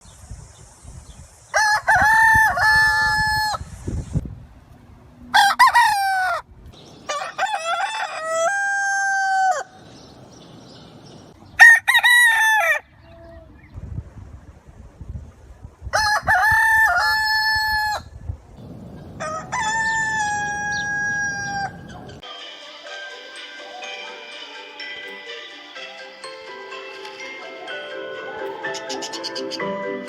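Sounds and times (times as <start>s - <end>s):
rooster crowing: 1.6s - 3.6s, 5.3s - 6.5s, 7.1s - 9.8s, 11.6s - 12.9s, 16.0s - 18.0s, 19.2s - 22.2s.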